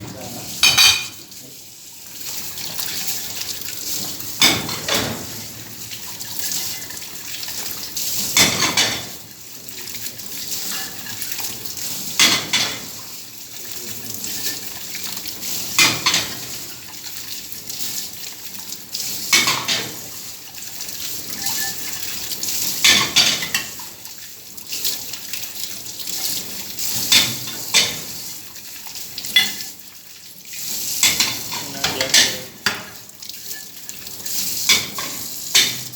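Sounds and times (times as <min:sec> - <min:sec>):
running tap water: 0:00.0 - 0:35.9
crockery clattering: 0:00.6 - 0:01.2.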